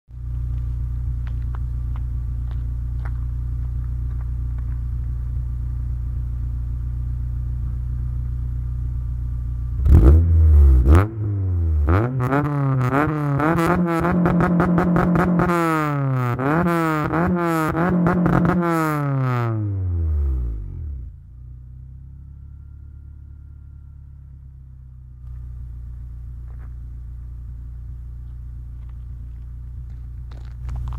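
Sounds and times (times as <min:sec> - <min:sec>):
car engine idling: 0:00.1 - 0:30.9
car engine revving: 0:08.9 - 0:24.5.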